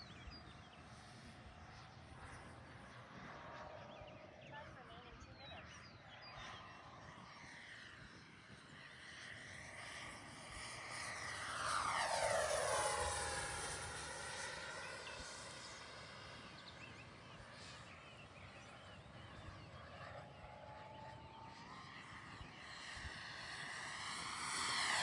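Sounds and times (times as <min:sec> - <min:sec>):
model jet fans whining past: 0:06.5 - 0:25.0.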